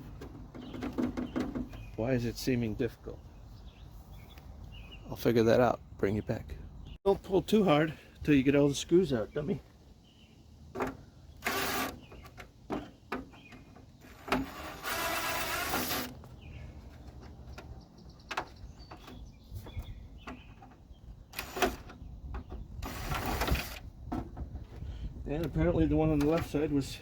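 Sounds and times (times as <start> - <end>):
short scraping or whirring bursts: 11.3 - 12.4, 14.0 - 16.3, 21.3 - 21.9, 22.8 - 23.9.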